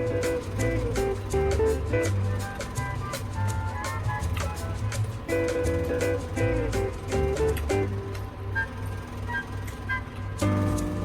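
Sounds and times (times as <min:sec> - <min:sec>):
steady bass line: 0:00.0 - 0:08.2, 0:10.4 - 0:11.0
held melody notes: 0:00.0 - 0:11.0.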